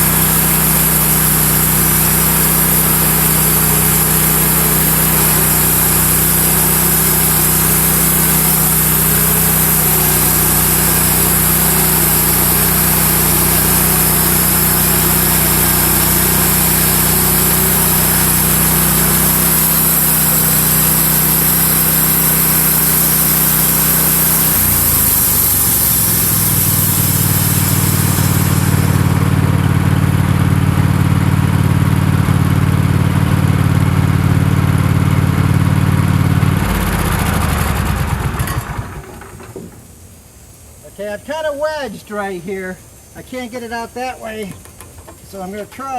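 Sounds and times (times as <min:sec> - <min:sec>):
band saw blade cutting log: 0:00.0 - 0:29.4
sawmill engine running: 0:00.0 - 0:45.9.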